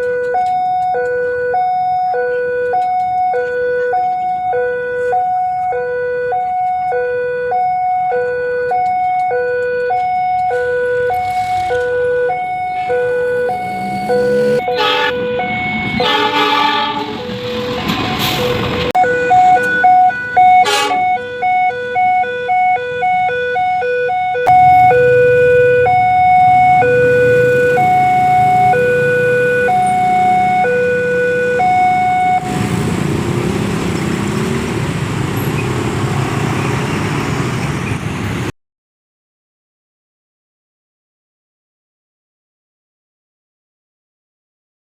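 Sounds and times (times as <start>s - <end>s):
rumble of traffic or train: 0.0s - 7.0s, 8.2s - 38.5s
two-note electronic warning alarm: 0.0s - 32.7s
loud horn blast: 12.7s - 21.5s.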